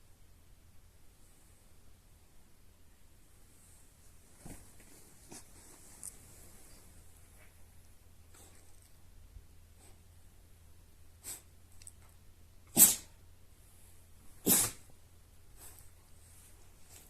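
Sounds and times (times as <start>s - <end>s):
dog sneezing: 11.2s - 11.5s, 12.7s - 13.2s, 14.4s - 14.9s.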